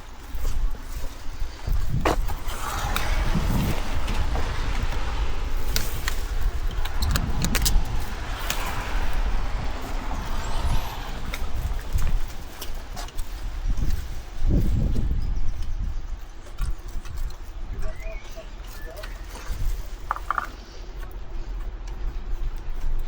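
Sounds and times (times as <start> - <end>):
car tyres hissing on wet road: 0.9 - 14.4
low rumble: 1.4 - 15.6.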